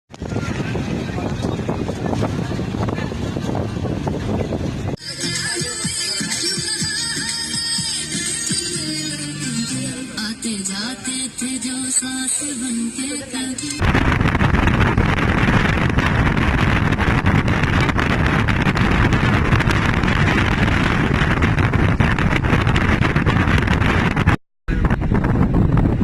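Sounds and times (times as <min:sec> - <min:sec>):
wind buffeting microphone: 0:00.1 - 0:05.0, 0:13.8 - 0:26.0
music: 0:05.0 - 0:13.8.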